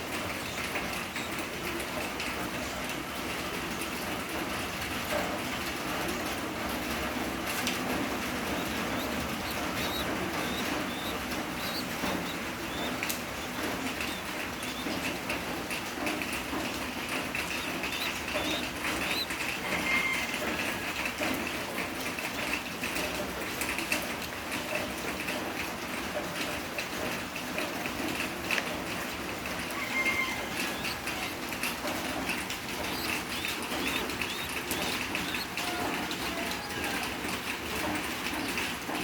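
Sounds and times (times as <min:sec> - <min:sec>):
baby bird cheeping: 0:00.1 - 0:01.6, 0:07.5 - 0:15.4, 0:17.1 - 0:20.8, 0:29.7 - 0:38.6.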